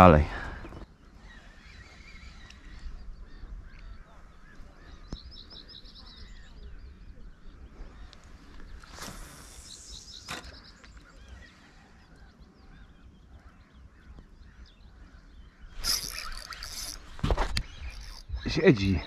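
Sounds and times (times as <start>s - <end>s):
small birds chirping: 0.0s - 19.0s
short hiss: 8.9s - 10.1s, 15.8s - 17.0s.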